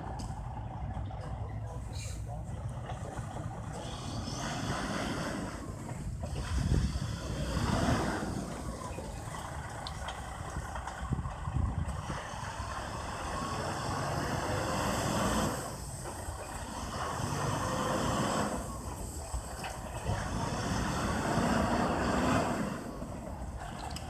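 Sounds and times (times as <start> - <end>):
truck engine rumbling: 0.0 - 24.0
wind noise: 4.2 - 24.0.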